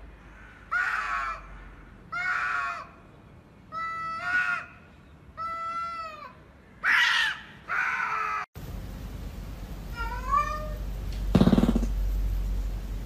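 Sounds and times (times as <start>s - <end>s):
cats yowling: 5.4s - 8.5s, 9.9s - 10.8s.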